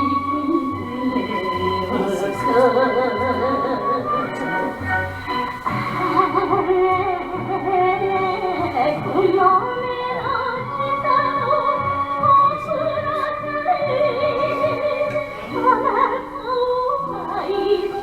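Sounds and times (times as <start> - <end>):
vibrato melody over accompaniment: 0.0 - 9.6.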